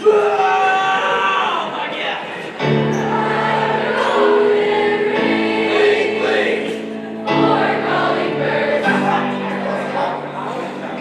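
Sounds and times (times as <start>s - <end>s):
choir singing christmas song: 2.4s - 11.0s.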